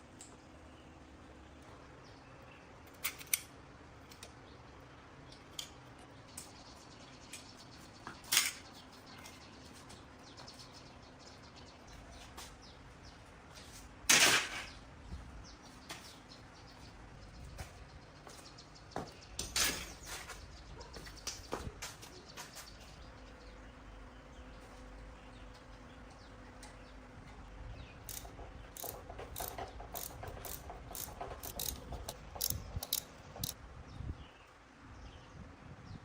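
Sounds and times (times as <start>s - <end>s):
hand tools clinking on metal: 28.1s - 33.6s.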